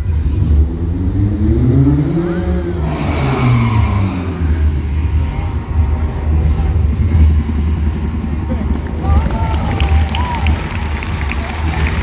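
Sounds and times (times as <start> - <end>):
car engine revving: 0.0 - 8.9.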